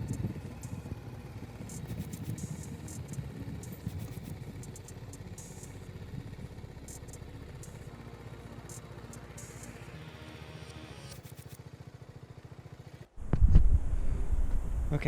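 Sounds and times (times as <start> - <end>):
motorcycle engine low putter: 0.0 - 8.0.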